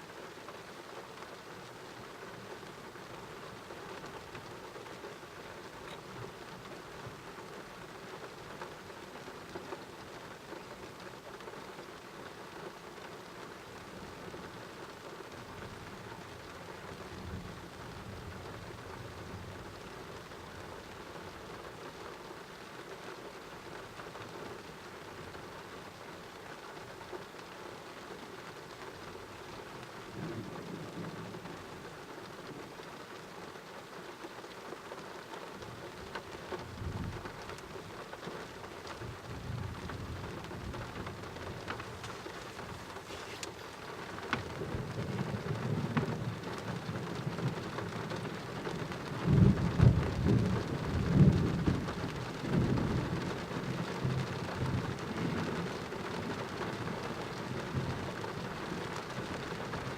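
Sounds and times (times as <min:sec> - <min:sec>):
heavy rain: 0:00.0 - 0:59.9
low rolling thunder: 0:44.4 - 0:55.4.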